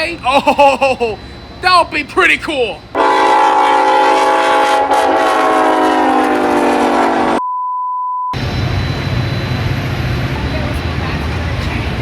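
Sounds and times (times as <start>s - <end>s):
locomotive air horn: 2.9s - 7.4s.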